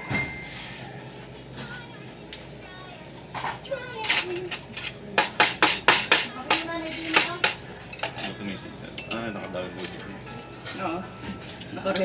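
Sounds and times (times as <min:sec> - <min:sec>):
dishes and utensils clattering: 0:00.0 - 0:00.8, 0:03.3 - 0:12.0.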